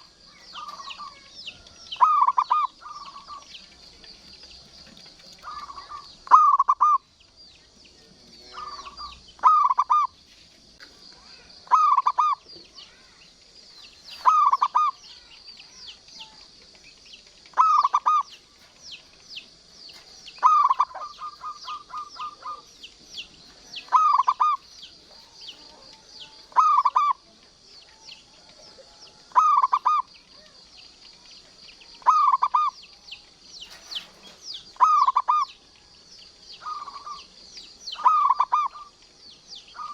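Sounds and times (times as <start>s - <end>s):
dove cooing: 0.0s - 7.1s, 8.4s - 10.2s, 11.2s - 13.2s, 14.1s - 31.2s, 31.9s - 35.7s, 36.6s - 39.0s
high chirring with chirps: 0.0s - 10.3s, 11.0s - 39.9s.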